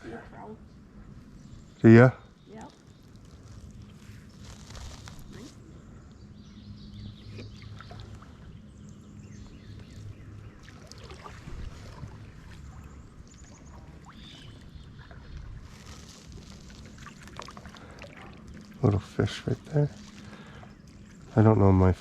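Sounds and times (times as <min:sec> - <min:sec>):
paddle splashes and drips: 0:07.3 - 0:21.4.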